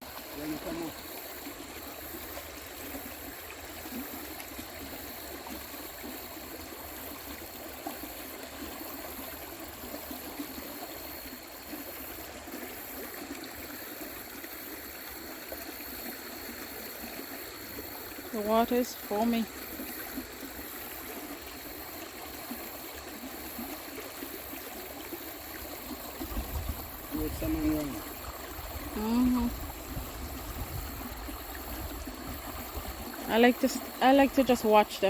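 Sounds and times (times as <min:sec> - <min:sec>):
water rushing over rocks: 0:21.6 - 0:35.0.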